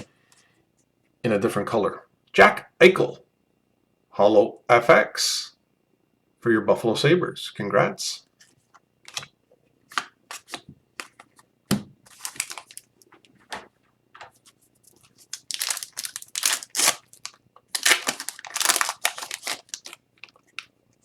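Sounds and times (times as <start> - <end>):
cards clicking and shuffling: 8.4 - 9.3, 9.9 - 20.8
card pack wrappers tearing: 12.1 - 13.1, 14.8 - 20.7.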